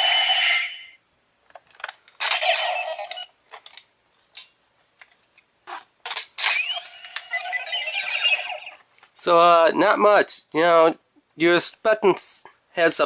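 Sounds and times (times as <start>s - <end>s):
toy electronic sound: 2.3s - 3.3s, 6.5s - 8.8s.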